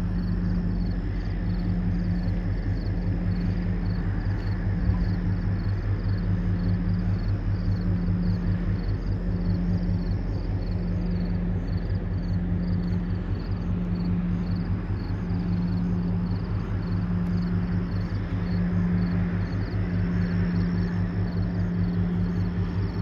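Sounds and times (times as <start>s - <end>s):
ship engine throbbing drone: 0.0s - 23.0s.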